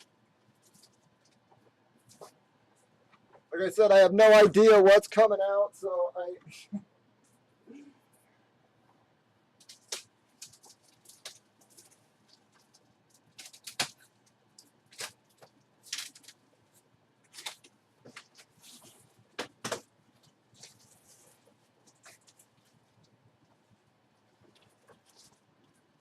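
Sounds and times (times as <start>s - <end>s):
plastic packaging crinkling: 9.6s - 19.2s.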